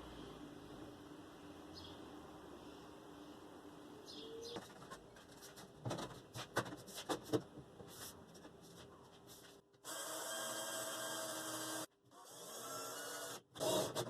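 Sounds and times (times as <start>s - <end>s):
power tool whirring: 9.8s - 14.0s.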